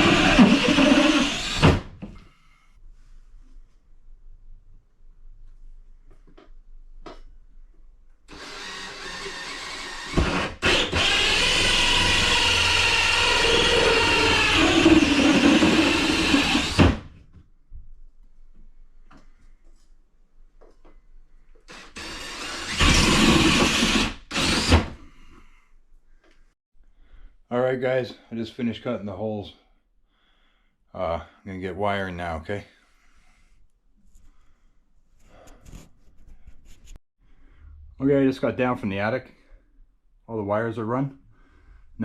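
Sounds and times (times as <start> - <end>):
power tool cutting drywall: 0.0 - 2.0, 8.3 - 17.2, 21.7 - 25.0.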